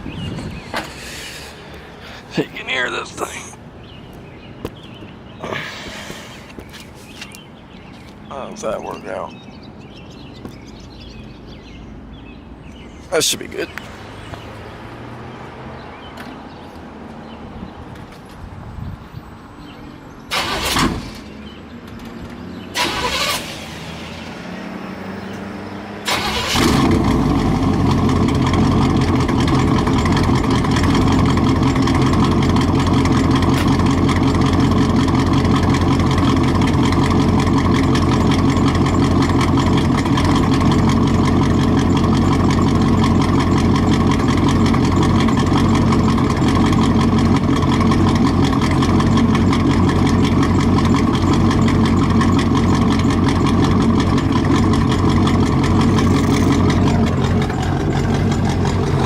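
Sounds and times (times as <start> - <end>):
engine bursts: 20.3 - 59.0
loud engine idling: 26.1 - 59.0.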